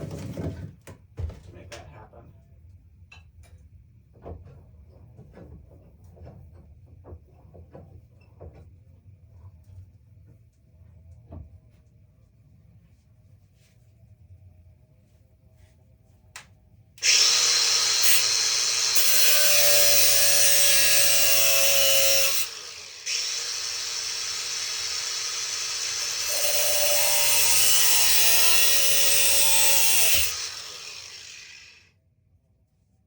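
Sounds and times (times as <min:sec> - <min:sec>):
power tool cutting: 0:17.0 - 0:31.8.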